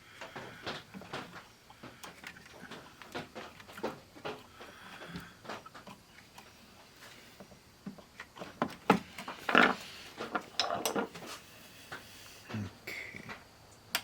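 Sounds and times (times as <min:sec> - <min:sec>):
handling clicks and knocks: 0:00.2 - 0:06.6.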